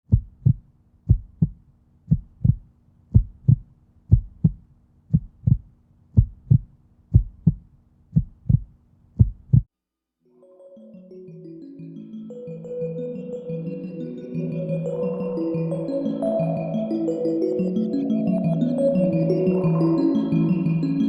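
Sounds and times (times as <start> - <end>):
heartbeat double thump: 0.1 - 9.7
soft music: 10.3 - 21.0.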